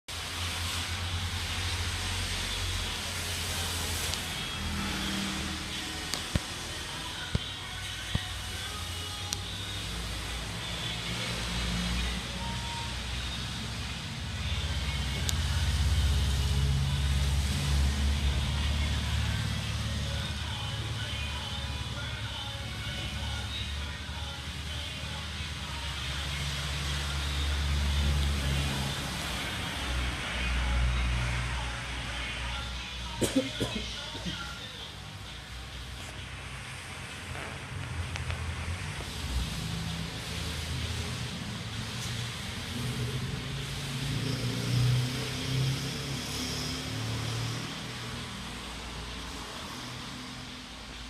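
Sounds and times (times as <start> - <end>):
motorcycle engine revving: 0.6 - 6.8, 37.2 - 48.6.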